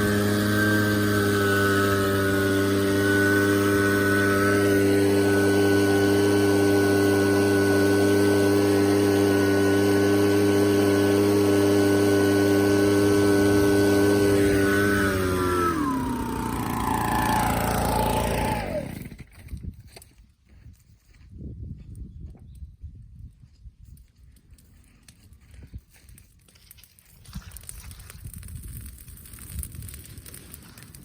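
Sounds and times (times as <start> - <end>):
blower running: 0.0 - 19.3.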